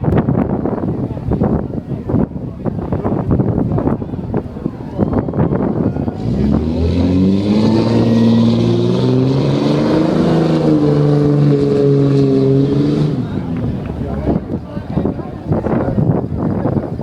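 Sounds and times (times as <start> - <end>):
car engine revving high: 5.8 - 14.4.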